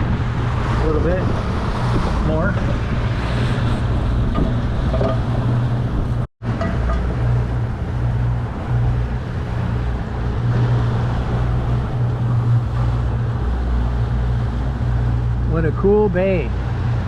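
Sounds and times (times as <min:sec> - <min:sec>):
wind noise: 0:00.0 - 0:15.6
boat motor running: 0:00.0 - 0:17.0
water noise: 0:00.0 - 0:17.0.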